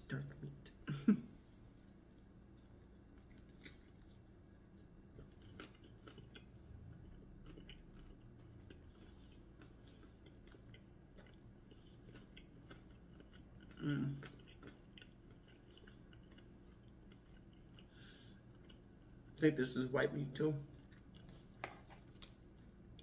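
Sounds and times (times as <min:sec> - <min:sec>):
person chewing with mouth smacks: 0:02.5 - 0:19.3, 0:20.7 - 0:23.0
short hummed vocal sound: 0:13.8 - 0:14.2.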